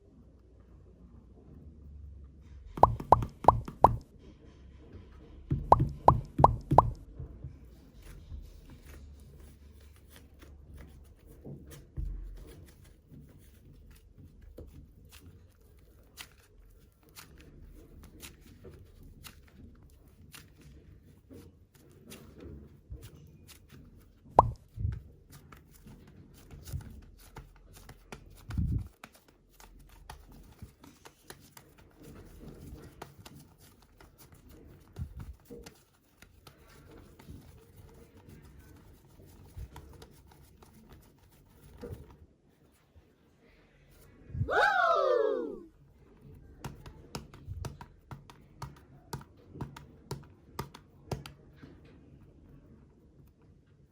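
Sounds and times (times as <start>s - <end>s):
clay squishing by hand: 2.7s - 4.1s, 5.0s - 53.9s
soft thumps of clay pressed: 5.5s - 9.1s.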